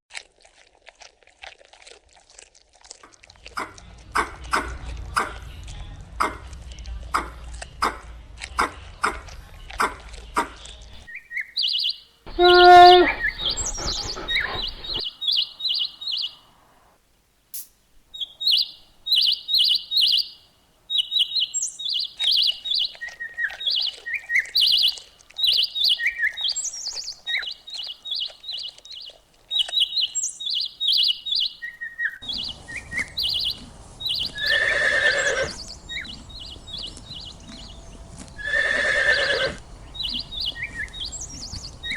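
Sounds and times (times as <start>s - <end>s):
small birds chirping: 11.1s - 16.9s, 17.6s - 41.9s
loud pitched bird call: 11.6s - 16.4s.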